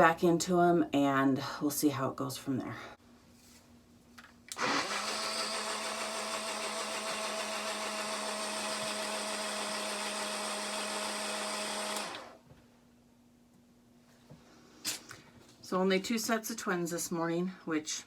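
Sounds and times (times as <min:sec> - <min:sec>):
electric mixer whirring: 0:04.5 - 0:12.4.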